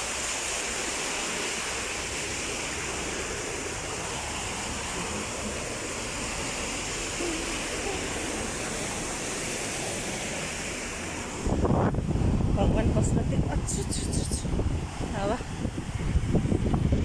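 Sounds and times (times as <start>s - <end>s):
heavy rain: 0.0s - 17.0s
strong wind: 0.0s - 17.0s.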